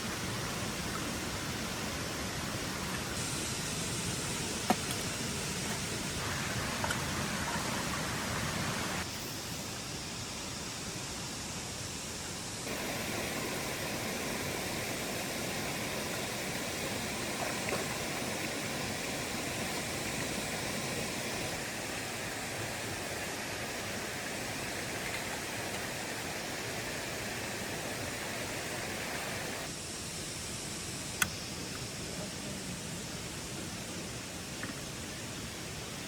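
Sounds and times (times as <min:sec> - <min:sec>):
steady rushing noise: 0:12.5 - 0:31.6.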